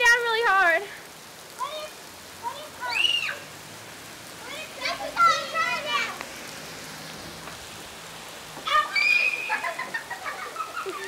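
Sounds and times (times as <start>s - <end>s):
heavy rain hissing: 0.0s - 11.0s
high-pitched voice shrieking: 8.7s - 9.6s.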